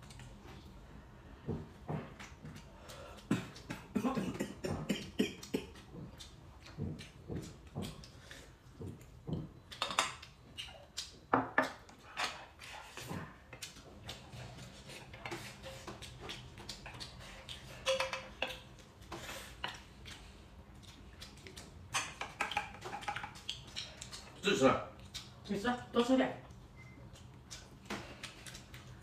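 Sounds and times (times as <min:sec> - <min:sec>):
chewing: 0:04.7 - 0:25.5, 0:26.4 - 0:29.0.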